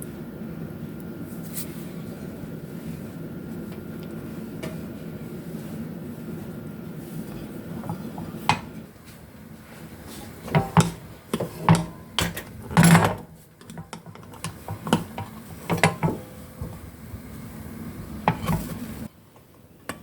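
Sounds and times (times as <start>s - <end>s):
metal cookware clanking: 10.4s - 16.8s
metal cookware rattling: 10.4s - 16.8s.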